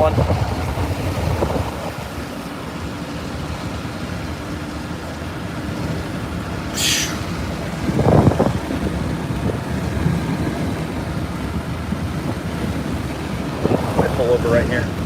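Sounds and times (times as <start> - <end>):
road and engine noise in car: 0.0 - 15.0
burst of hiss: 6.8 - 7.3.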